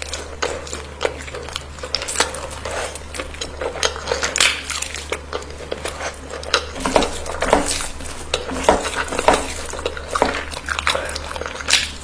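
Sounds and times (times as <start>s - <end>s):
cutlery clinking on a dish: 6.5s - 10.8s.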